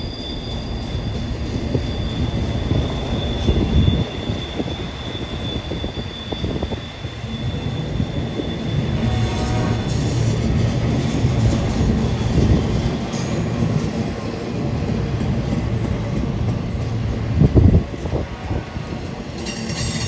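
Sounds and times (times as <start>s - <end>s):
train wheels rumbling on rail: 0.0s - 20.0s
wind buffeting microphone: 9.9s - 19.4s.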